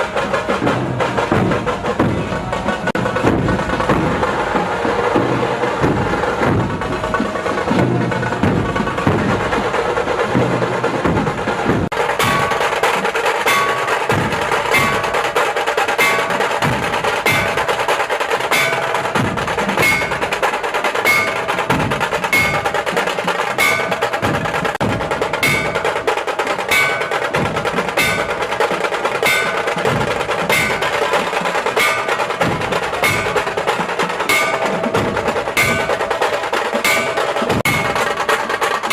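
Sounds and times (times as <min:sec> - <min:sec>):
percussion music with steady beat: 0:00.0 - 0:38.9
wooden and bell-like accents: 0:12.1 - 0:38.9.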